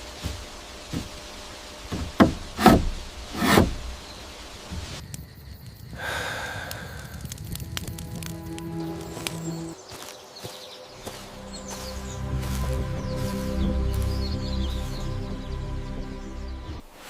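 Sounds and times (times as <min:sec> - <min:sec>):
dull knocks: 0:01.9 - 0:04.0.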